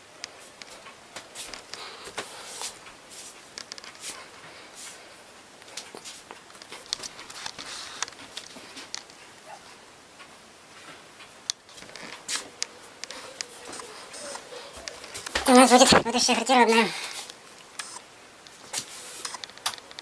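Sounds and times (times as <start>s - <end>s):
faint hiss: 0.0s - 20.0s
handling clicks and rustles: 5.5s - 9.5s, 17.2s - 20.0s.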